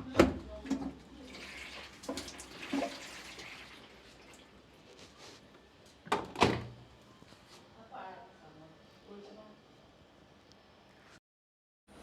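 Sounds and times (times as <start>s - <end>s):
water running and splashing: 1.2s - 4.6s.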